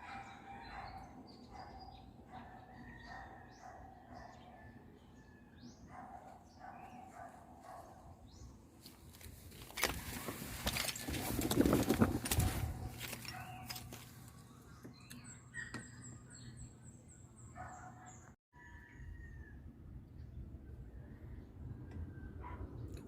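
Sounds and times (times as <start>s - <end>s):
bird chirping: 0.0s - 8.6s, 12.7s - 18.3s
rustling and clattering: 8.8s - 14.3s.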